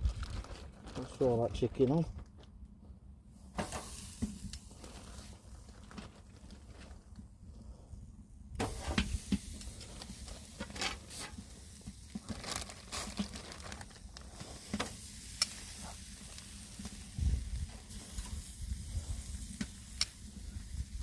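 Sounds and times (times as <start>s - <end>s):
chicken sizzling on a grill: 3.5s - 5.6s, 8.6s - 13.4s, 14.0s - 21.0s.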